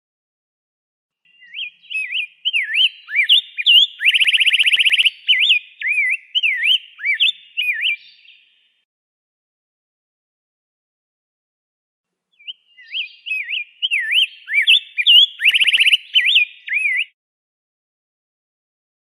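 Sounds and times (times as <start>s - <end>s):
bird singing whistled notes and trill: 1.3s - 8.8s, 12.3s - 17.2s.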